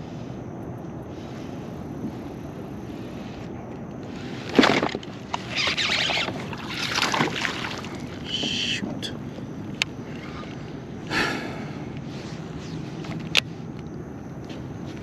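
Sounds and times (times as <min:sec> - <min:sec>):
water splashing beside kayak: 0:04.2 - 0:10.8.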